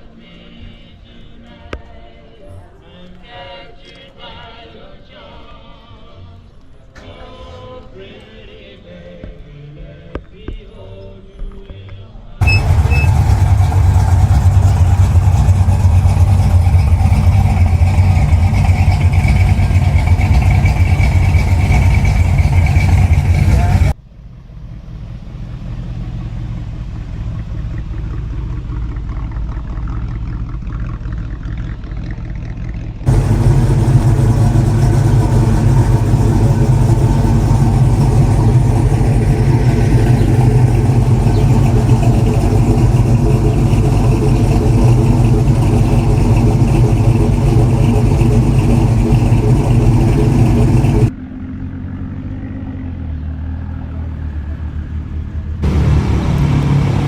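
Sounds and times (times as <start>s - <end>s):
loud car engine idling: 12.4s - 53.0s, 55.0s - 57.0s
quieter engine sound: 12.4s - 57.0s.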